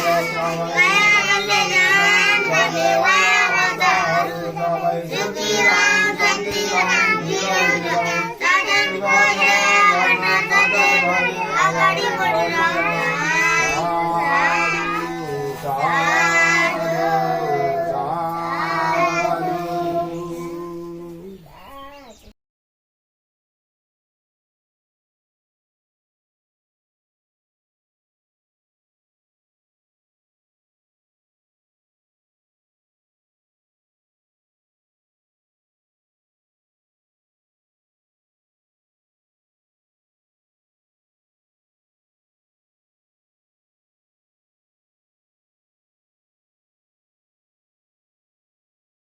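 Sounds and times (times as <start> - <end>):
children singing: 0.0 - 22.3.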